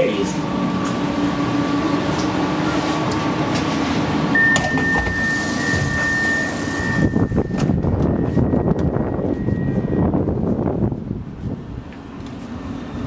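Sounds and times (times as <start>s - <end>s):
tram interior rumble and hum: 0.0s - 13.0s
steady high-pitched tone: 4.3s - 11.2s.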